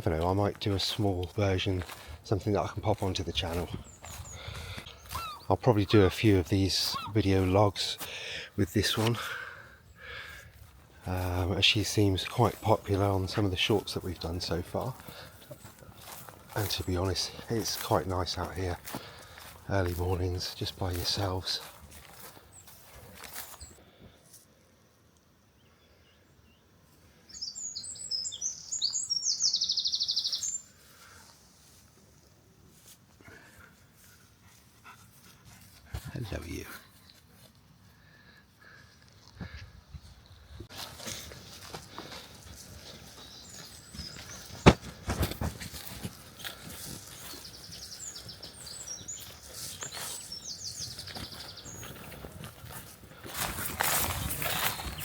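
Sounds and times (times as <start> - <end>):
bird chirps: 3.5 - 7.2, 27.2 - 30.8, 42.9 - 45.0, 46.4 - 52.2
bird trilling: 6.8 - 7.2
songbird singing with trill: 25.6 - 26.7, 27.3 - 30.8, 43.0 - 44.8, 46.4 - 52.2.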